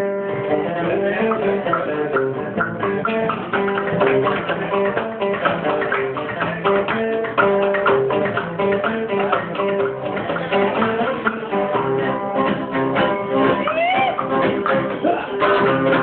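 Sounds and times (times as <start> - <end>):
bass line: 0.0 - 16.0
plucked guitar: 0.0 - 16.0.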